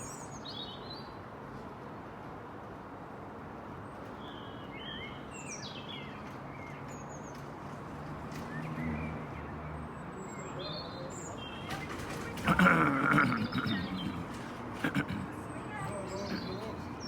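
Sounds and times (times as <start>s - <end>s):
songbirds chirping: 8.4s - 17.0s.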